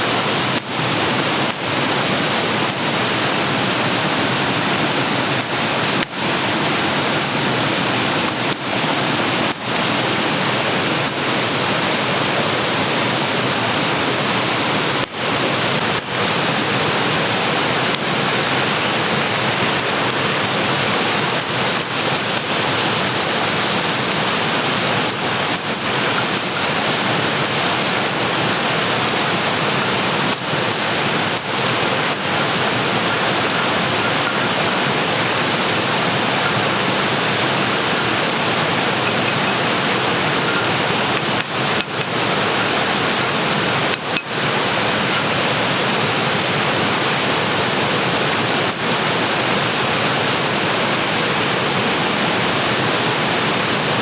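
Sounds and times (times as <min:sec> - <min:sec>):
food sizzling in a pan: 0:18.9 - 0:39.7.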